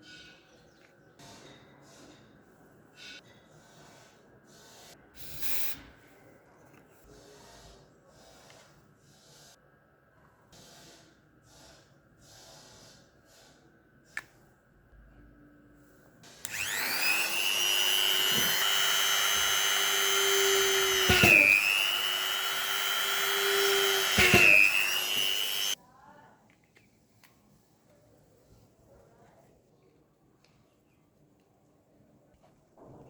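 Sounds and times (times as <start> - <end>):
click: 16.5 - 21.7
electric motor whining: 16.5 - 25.8.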